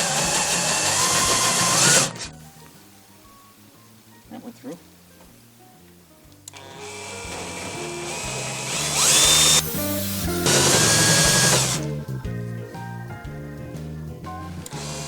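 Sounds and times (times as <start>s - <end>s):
drill cutting sheet steel: 0.0s - 2.2s, 6.6s - 11.8s
background music: 0.0s - 15.0s.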